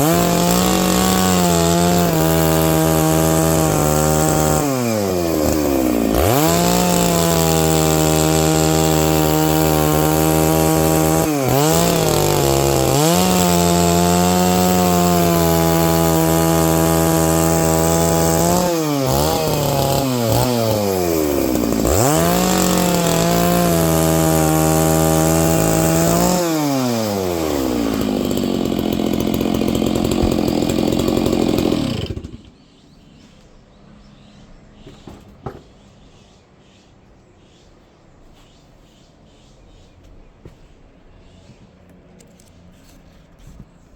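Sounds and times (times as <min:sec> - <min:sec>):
chainsaw ripping a log: 0:00.0 - 0:32.6.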